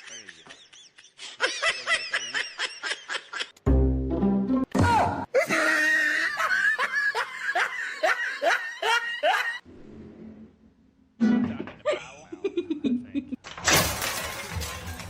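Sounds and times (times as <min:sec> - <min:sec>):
person laughing: 0:05.3 - 0:09.6, 0:11.8 - 0:13.4.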